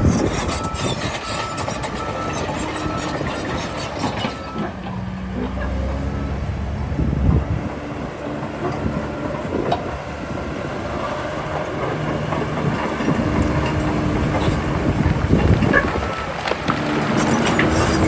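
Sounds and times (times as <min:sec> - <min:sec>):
diesel earthmoving machinery running: 0:00.0 - 0:18.0.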